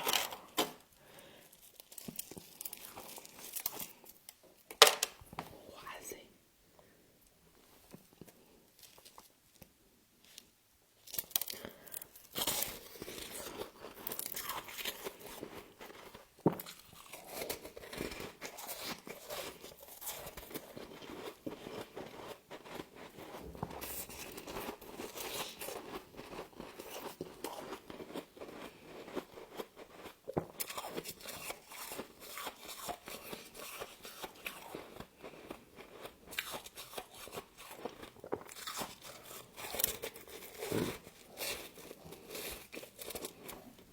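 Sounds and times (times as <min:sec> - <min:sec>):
crunching and chewing frost: 0:00.0 - 0:04.4, 0:07.8 - 0:43.9.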